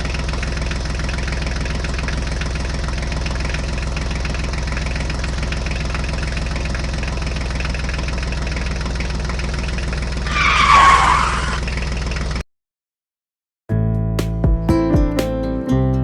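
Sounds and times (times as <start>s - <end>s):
small engine running: 0.0s - 12.4s.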